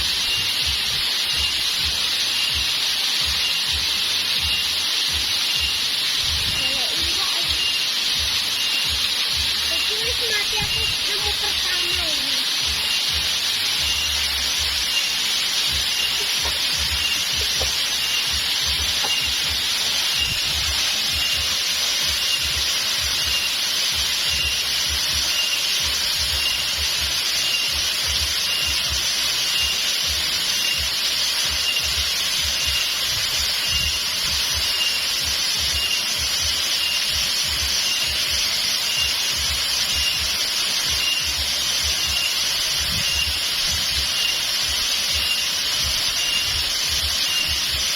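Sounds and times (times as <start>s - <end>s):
flowing water rushing: 0.0s - 47.9s
faint high chirp: 0.2s - 0.6s, 13.8s - 15.2s, 15.8s - 21.5s, 31.5s - 47.8s.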